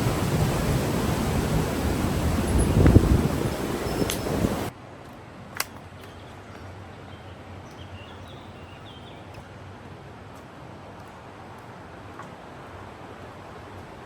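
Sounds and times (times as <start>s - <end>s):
wind buffeting microphone: 0.0s - 4.7s
faint high chirps: 2.4s - 4.7s
sharp click: 5.6s - 6.2s.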